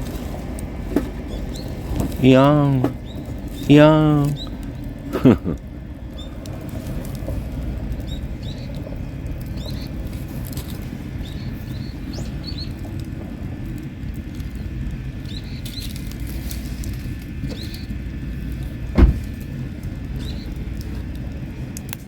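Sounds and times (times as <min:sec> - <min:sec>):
campfire burning and crackling: 0:00.0 - 0:22.0
small birds chirping: 0:01.2 - 0:05.4, 0:06.1 - 0:06.4, 0:07.9 - 0:13.0, 0:14.4 - 0:16.2, 0:17.5 - 0:18.0, 0:20.0 - 0:20.6.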